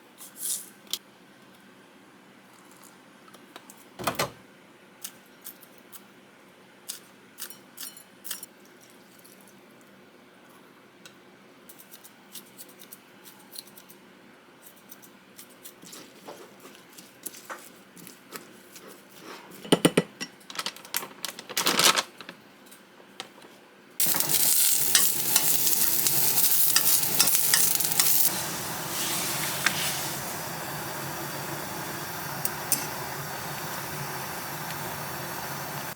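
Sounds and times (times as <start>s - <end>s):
utensils clattering: 24.0s - 30.0s
utensils clinking in a pan: 24.0s - 30.1s, 32.5s - 33.0s
frying sizzle: 24.0s - 35.9s.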